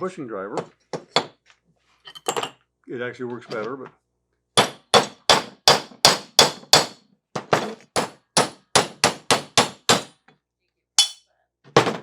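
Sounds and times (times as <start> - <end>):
hammer striking metal with clang: 11.0 - 11.2.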